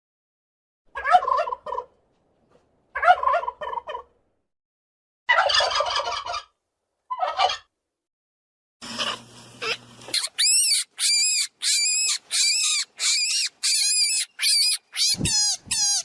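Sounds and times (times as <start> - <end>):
turkey gobbling: 0.9 - 2.0, 3.0 - 4.1, 5.3 - 7.7.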